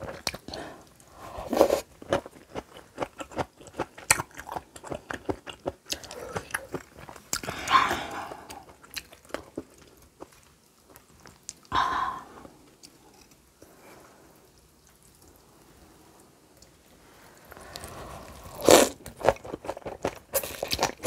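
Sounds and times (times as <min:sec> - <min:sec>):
crunchy chewing: 0:01.4 - 0:11.7, 0:17.5 - 0:21.0.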